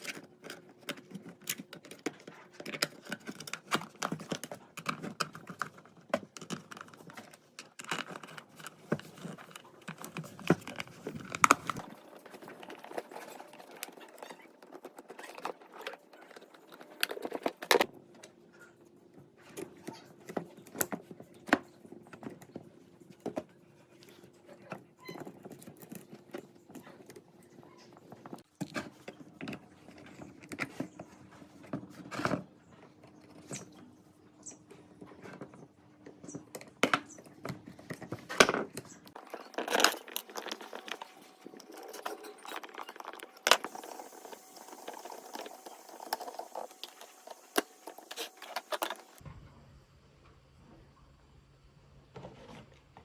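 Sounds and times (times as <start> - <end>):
small hard parts clicking and clinking: 0.0 - 17.9, 35.3 - 49.2.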